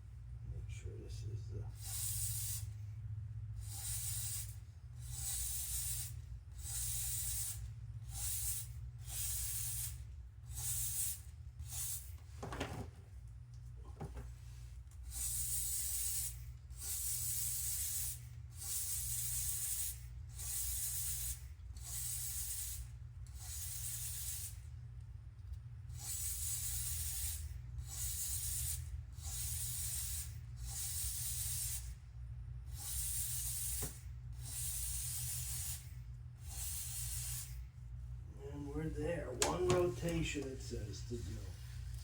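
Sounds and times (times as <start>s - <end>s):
aerosol spray bursts: 1.8s - 2.7s, 3.6s - 12.2s, 15.0s - 24.6s, 26.0s - 32.0s, 32.7s - 37.6s.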